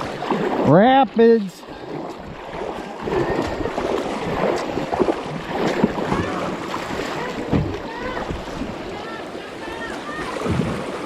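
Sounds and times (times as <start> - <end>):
sharp splashes or knocks: 1.9 - 8.8, 10.0 - 11.0
river rapids rushing: 2.6 - 11.0.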